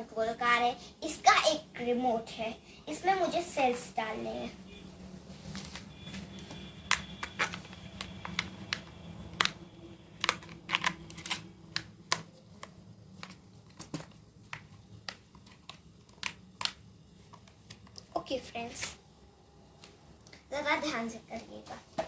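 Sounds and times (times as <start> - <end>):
plastic clicks and taps: 10.2 - 18.1.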